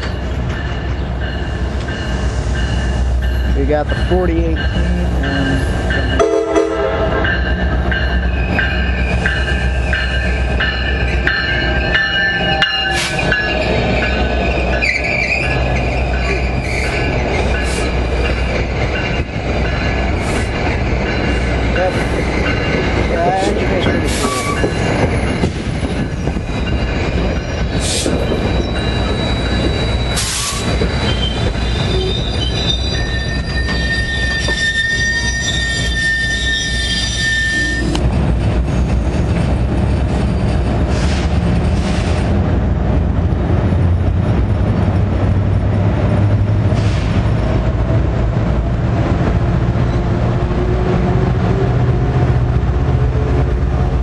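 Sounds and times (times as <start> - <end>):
low train rumble: 0.0 - 54.0
train wheels on rails: 0.0 - 54.0
high wheel squeal: 8.2 - 18.0, 23.8 - 38.0.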